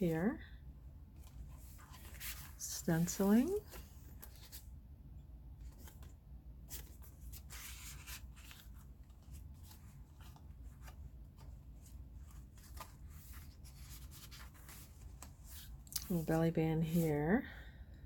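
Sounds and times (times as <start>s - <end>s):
soft paper crackles: 1.1s - 4.8s, 5.5s - 17.0s
paper pages rustling: 1.2s - 4.7s, 5.6s - 16.3s.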